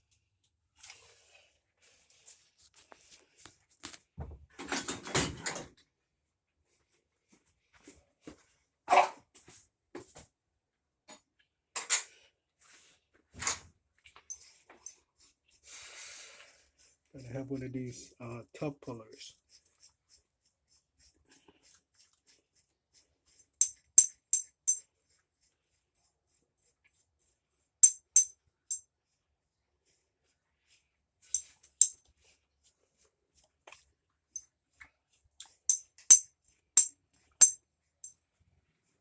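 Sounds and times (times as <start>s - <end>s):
metal parts clinking: 36.8s - 37.6s.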